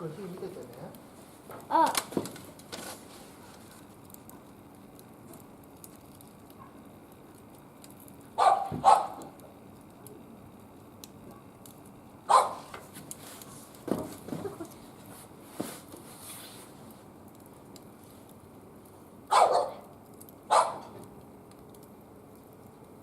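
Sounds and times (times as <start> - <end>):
faint wood fire crackle: 0.0 - 23.0
dog barking: 8.4 - 9.4, 12.3 - 12.7, 19.3 - 19.9, 20.5 - 21.0.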